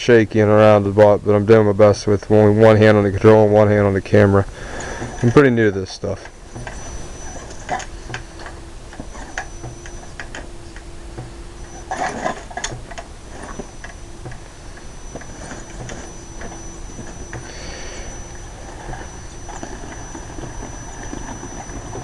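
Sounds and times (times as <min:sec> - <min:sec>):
electric motor whine: 0:02.3 - 0:22.0
irregular clicks and ticks: 0:06.0 - 0:22.0.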